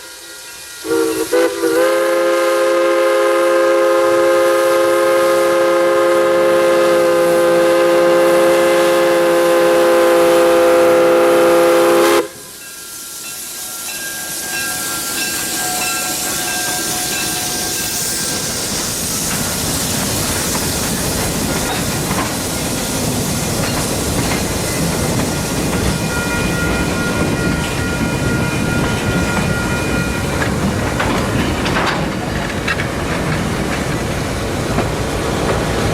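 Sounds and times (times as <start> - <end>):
steam locomotive whistle: 0.0 - 19.3, 24.6 - 30.8
train running: 0.0 - 35.9.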